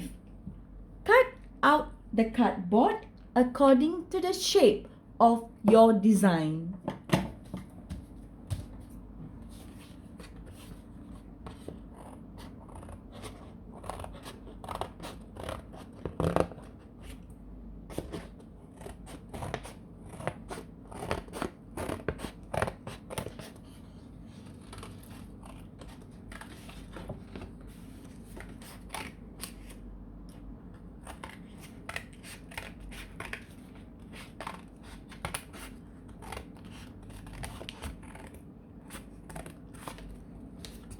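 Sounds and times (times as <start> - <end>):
scissors snipping cardboard: 12.4 - 16.7.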